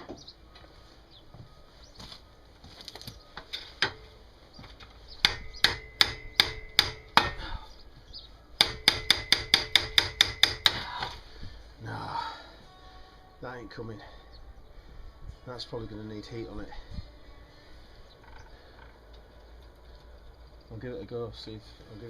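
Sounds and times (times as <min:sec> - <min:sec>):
hammer striking metal: 0:05.2 - 0:07.4, 0:08.6 - 0:10.9.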